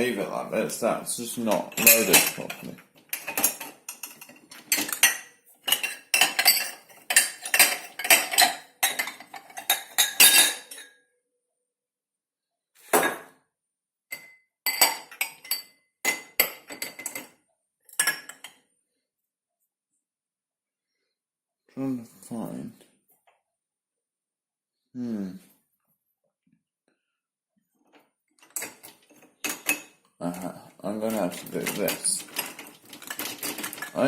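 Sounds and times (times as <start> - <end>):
dishes and cutlery clinking: 1.4 - 11.0, 14.1 - 18.6, 28.4 - 34.0.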